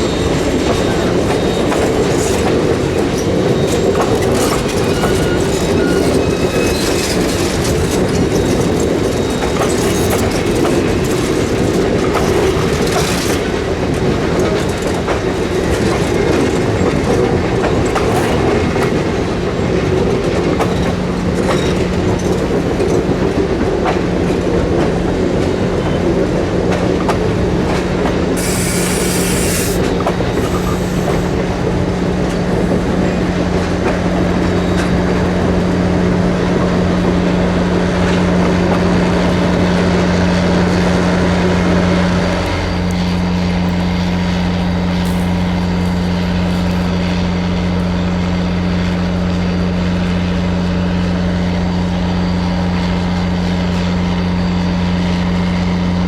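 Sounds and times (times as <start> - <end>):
train wheels squealing: 0.0 - 13.5, 28.4 - 35.4
train wheels clattering: 0.0 - 47.2
engine hum: 18.2 - 53.4
short hiss: 28.4 - 31.4, 44.8 - 46.9.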